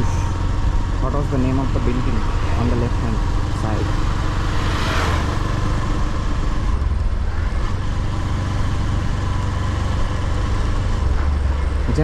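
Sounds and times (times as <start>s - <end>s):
motorcycle engine rumble: 0.0s - 12.0s
road noise: 0.0s - 12.0s.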